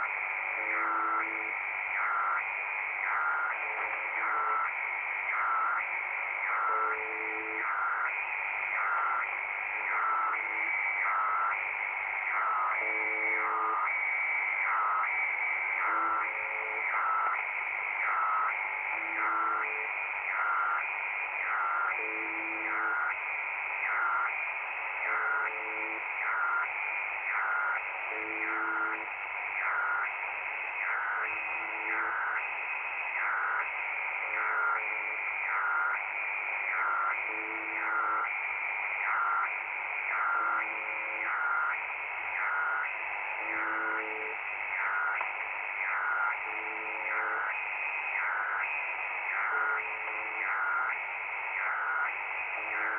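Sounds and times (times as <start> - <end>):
radio static hiss: 0.0 - 52.9.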